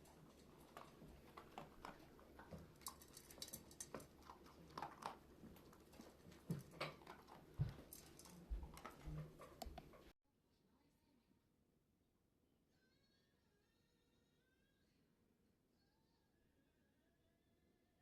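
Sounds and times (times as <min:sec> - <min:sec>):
dog claws clicking and tapping: 0:00.0 - 0:10.1.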